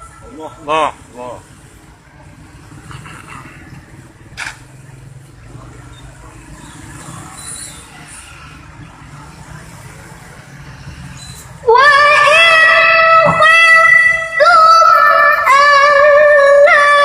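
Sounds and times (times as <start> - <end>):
faint murmur of a gathering: 0.0 - 11.6
girl reciting: 11.6 - 17.0.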